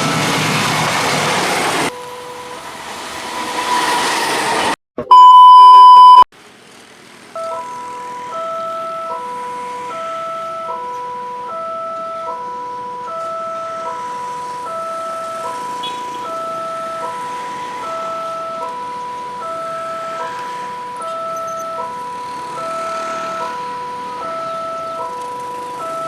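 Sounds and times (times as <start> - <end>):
train passing: 0.0 - 4.8, 6.7 - 26.0
crossing warning tones: 0.0 - 6.3, 7.3 - 26.0
electronic warning chime: 1.9 - 6.2, 7.4 - 26.0
loud steady beep: 5.0 - 6.3, 14.7 - 17.2, 19.4 - 25.0.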